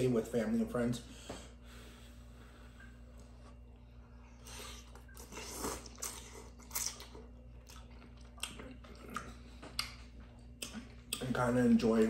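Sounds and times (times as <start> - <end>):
faint steady hum: 0.0 - 12.0
chewing and crunching: 4.3 - 11.5.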